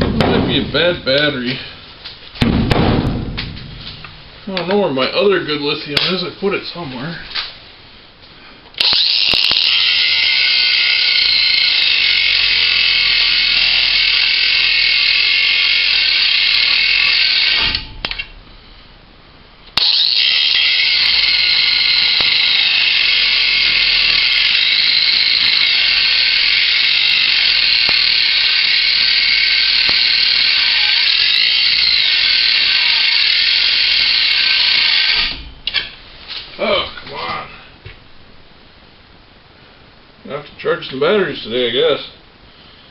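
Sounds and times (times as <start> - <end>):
angle grinder cutting steel: 8.8 - 17.8, 19.8 - 35.4.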